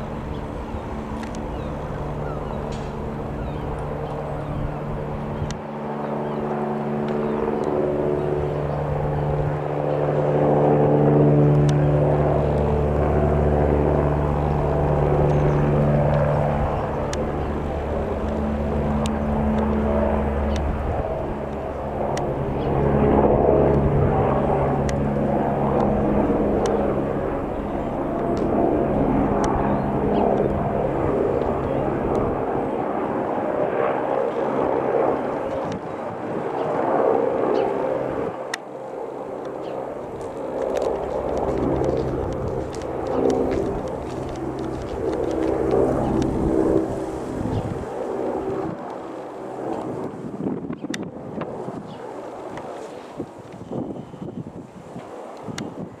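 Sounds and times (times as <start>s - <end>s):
helicopter running: 0.0s - 56.0s
deep low hum: 40.0s - 47.9s.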